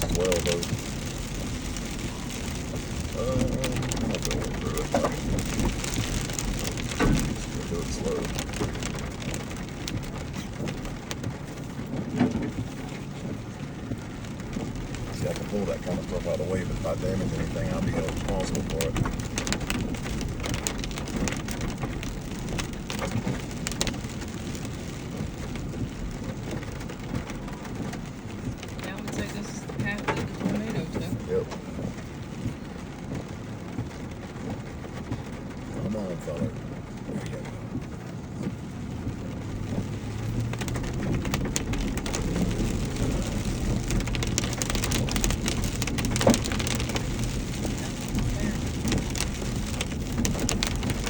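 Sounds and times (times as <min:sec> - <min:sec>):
truck engine running: 0:00.0 - 0:33.0
tyres crackling on gravel: 0:00.0 - 0:51.0
vehicle rumbling slowly: 0:00.0 - 0:51.0.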